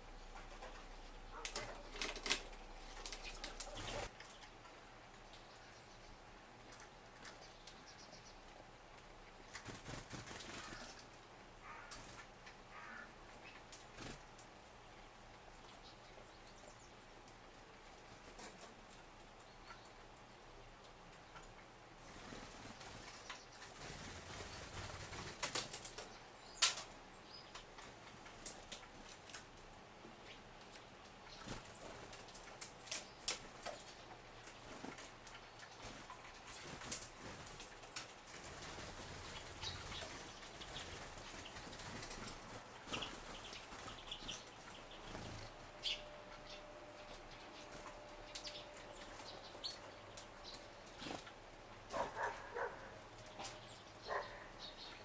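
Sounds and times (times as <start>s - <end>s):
bird wingbeats: 9.5s - 11.1s, 22.1s - 26.9s, 34.5s - 45.6s.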